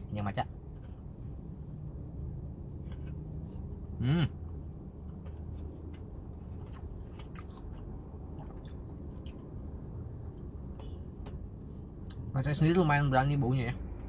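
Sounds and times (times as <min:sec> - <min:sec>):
steady low hum: 0:00.0 - 0:14.0
person chewing: 0:02.7 - 0:03.7, 0:05.0 - 0:09.8.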